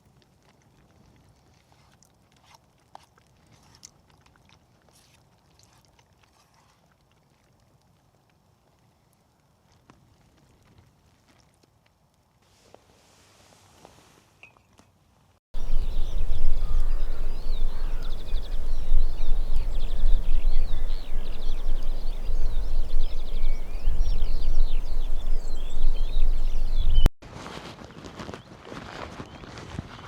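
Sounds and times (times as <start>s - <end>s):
bird singing warbles and trills: 15.6s - 27.1s
wind buffeting microphone: 15.6s - 27.1s.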